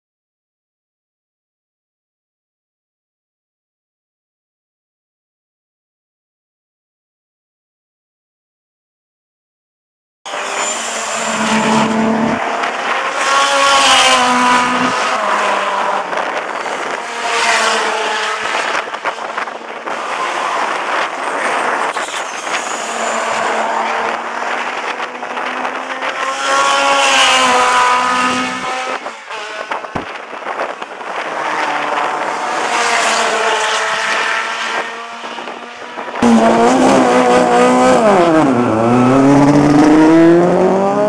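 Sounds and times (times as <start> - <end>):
race car engines revving: 10.3 - 41.0.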